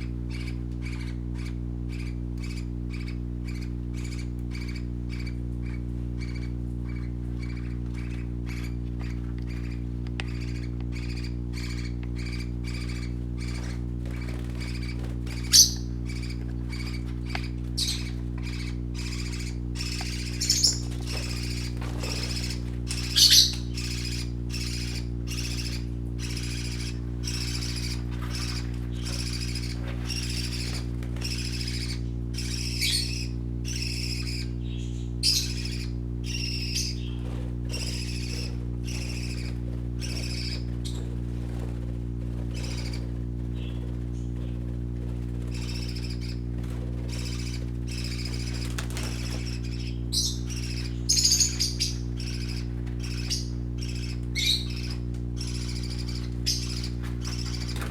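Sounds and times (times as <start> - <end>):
baby parakeets chirping: 0.0 - 57.9
low steady hum: 0.0 - 57.9.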